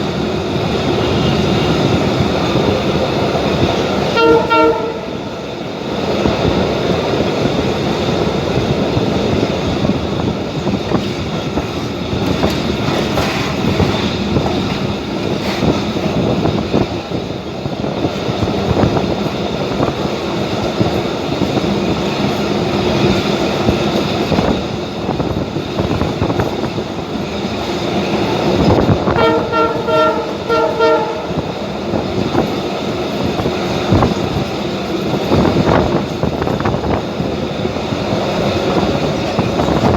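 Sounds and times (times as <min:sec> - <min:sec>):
train rumbling on track: 0:00.0 - 0:39.9
train horn: 0:01.0 - 0:01.8, 0:04.1 - 0:05.4, 0:29.1 - 0:31.6.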